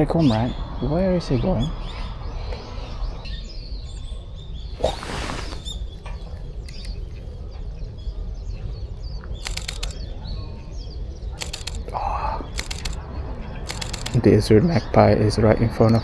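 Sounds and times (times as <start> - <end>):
birds chirping: 3.6 - 14.3
camera shutter clicks: 6.6 - 7.0, 9.4 - 10.0, 11.4 - 13.0, 13.7 - 14.3.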